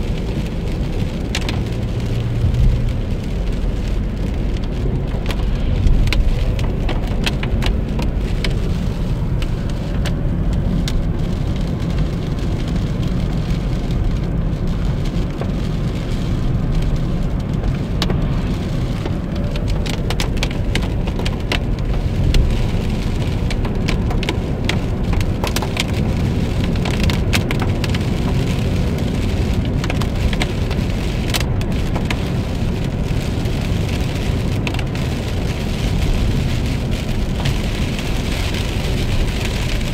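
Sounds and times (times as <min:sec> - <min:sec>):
heavy rain hitting a car: 0:00.0 - 0:39.9
road and engine rumble: 0:00.0 - 0:39.9.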